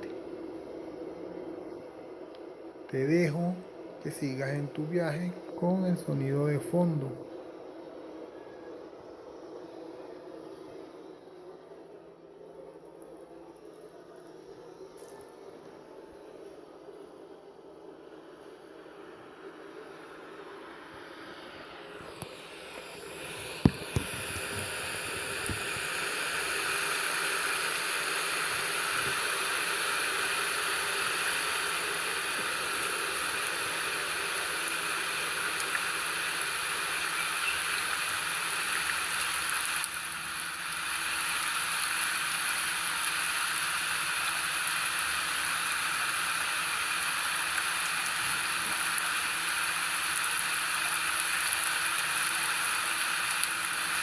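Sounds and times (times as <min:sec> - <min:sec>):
rain: 0:22.1 - 0:54.0.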